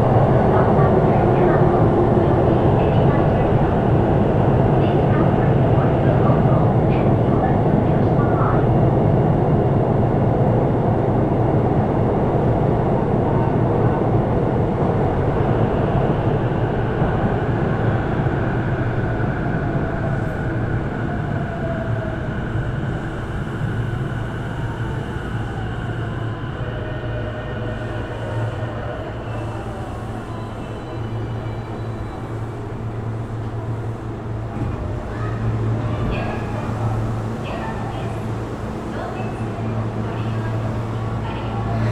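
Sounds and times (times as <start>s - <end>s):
train rail rumble: 0.0s - 41.9s.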